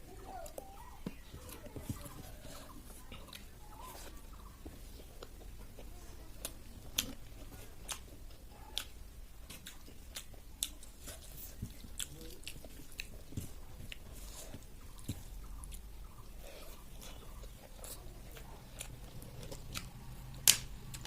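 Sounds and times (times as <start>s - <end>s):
person chewing and biting food: 4.9s - 21.0s
sharp clicks and smacks: 19.6s - 21.0s.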